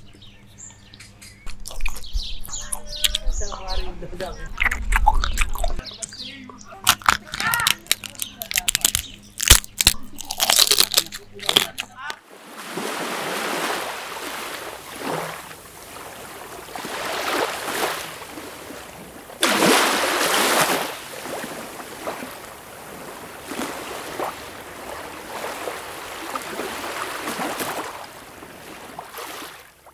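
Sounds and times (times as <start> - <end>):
sea water lapping over sand: 10.0 - 29.9.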